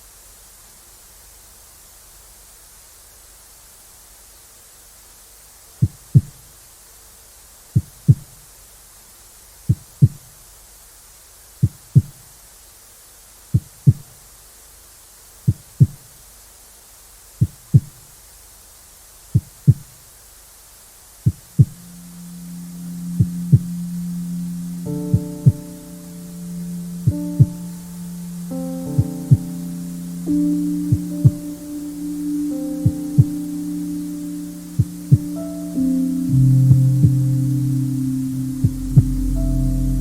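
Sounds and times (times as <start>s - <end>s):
white noise hiss: 0.0s - 40.0s
low steady hum: 21.6s - 40.0s
heartbeat thumps: 25.0s - 25.8s, 27.0s - 27.7s, 28.9s - 29.6s, 32.8s - 33.4s, 36.7s - 37.4s, 38.6s - 40.0s.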